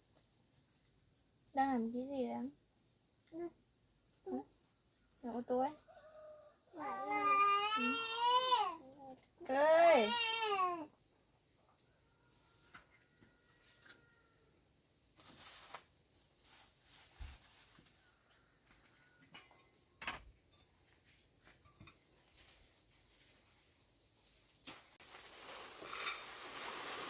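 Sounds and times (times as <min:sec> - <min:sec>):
insects chirring: 0:00.0 - 0:27.0
rustling: 0:15.1 - 0:18.3, 0:20.9 - 0:27.0.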